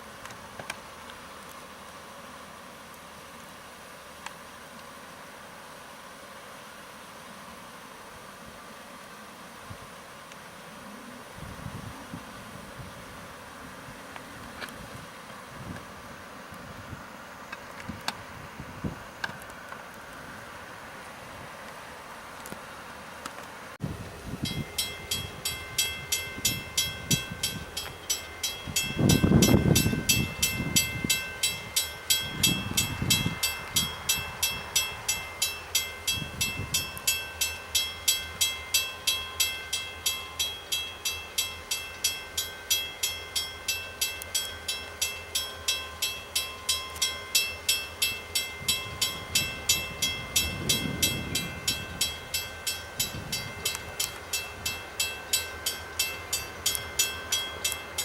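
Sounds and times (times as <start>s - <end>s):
railroad crossing bell ringing: 24.4s - 58.0s.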